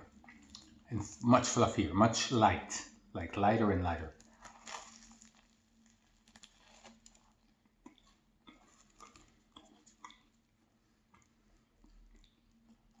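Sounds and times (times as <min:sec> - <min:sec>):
faint chewing: 0:00.0 - 0:01.2, 0:04.1 - 0:13.0.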